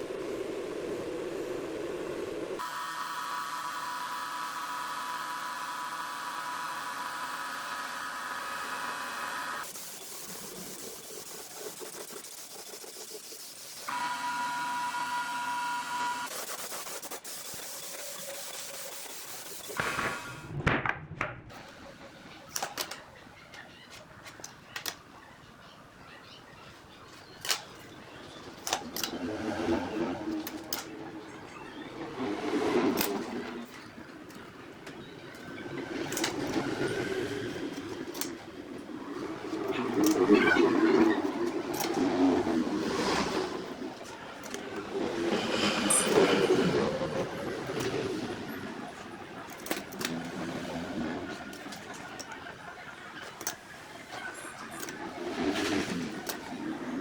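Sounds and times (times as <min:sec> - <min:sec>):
power tool whining: 0:02.6 - 0:09.8, 0:13.9 - 0:16.3.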